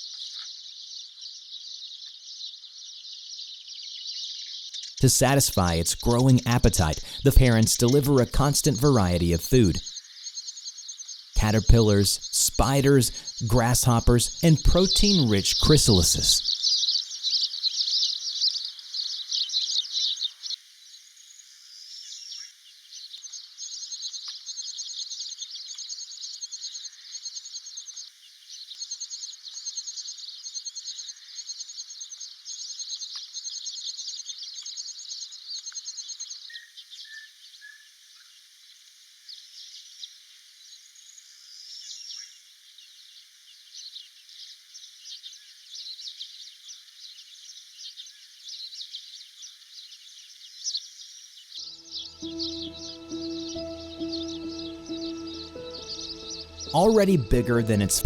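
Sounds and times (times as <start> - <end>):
small birds chirping: 0.0 - 58.0
quick high repeated bird notes: 5.0 - 9.9, 11.4 - 16.5.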